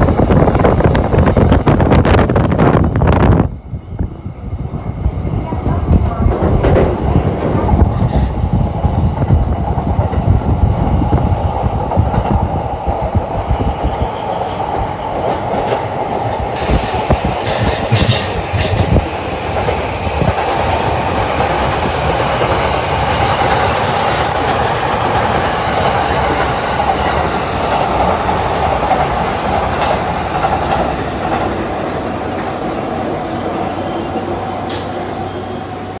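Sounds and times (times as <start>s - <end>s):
train wheels clattering: 5.5s - 35.4s.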